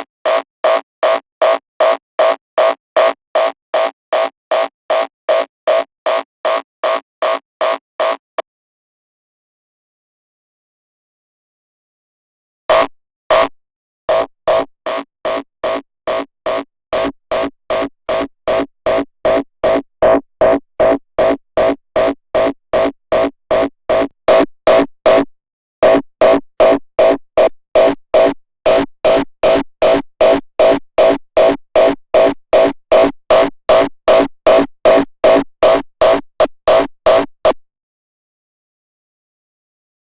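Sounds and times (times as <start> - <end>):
distorted kick drum loop: 14.1 - 37.6.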